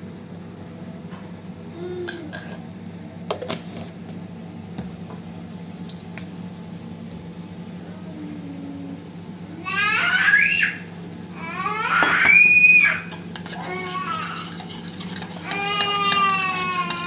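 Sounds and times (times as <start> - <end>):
steady low hum: 0.0 - 17.0
young child's voice: 7.8 - 14.5.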